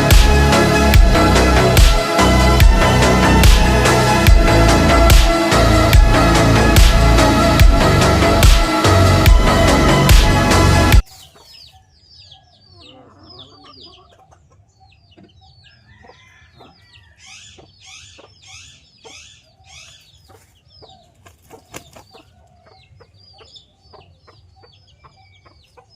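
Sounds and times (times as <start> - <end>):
music: 0.0 - 11.0
birds chirping: 0.0 - 25.9
chickens clucking: 11.0 - 25.9
harsh chicken calls: 11.0 - 25.9.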